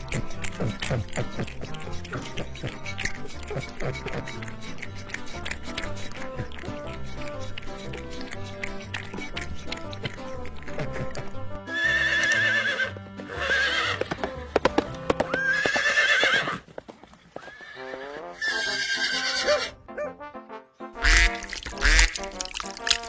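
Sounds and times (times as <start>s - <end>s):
background music: 0.0s - 16.6s, 17.6s - 23.0s
horse neighing: 11.7s - 14.2s, 15.2s - 16.7s, 17.4s - 19.8s.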